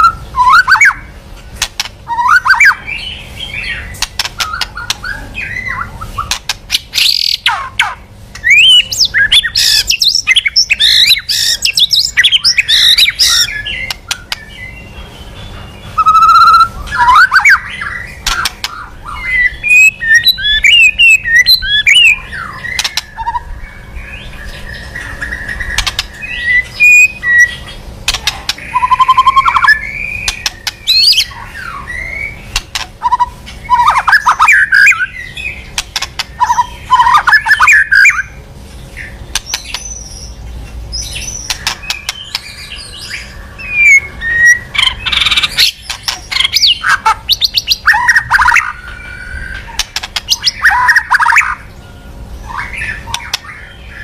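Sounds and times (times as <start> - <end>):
bird singing whistled phrases: 0.0 - 1.1, 2.1 - 23.5, 24.2 - 27.7, 28.6 - 32.4, 33.0 - 35.6, 36.4 - 38.4, 41.0 - 49.7, 50.3 - 51.6
sharp bird clicks: 1.6 - 2.8, 3.9 - 5.1, 6.2 - 14.6, 17.0 - 19.0, 19.7 - 23.4, 25.0 - 31.3, 32.5 - 35.1, 35.7 - 38.2, 39.3 - 40.3, 41.0 - 42.6, 44.8 - 48.7, 49.5 - 51.6, 53.0 - 53.6.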